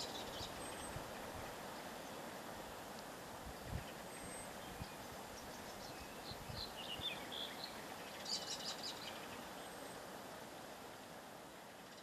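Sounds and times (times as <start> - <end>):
small birds chirping: 0.0 - 2.3, 3.6 - 10.1, 11.6 - 12.0
outdoor hiss: 0.0 - 12.0.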